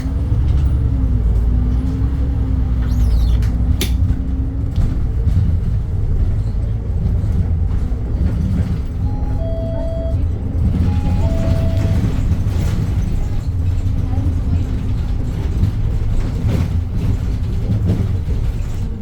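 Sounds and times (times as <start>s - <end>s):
bus cabin engine rumble: 0.0s - 19.0s
electronic two-note chime: 10.9s - 12.0s.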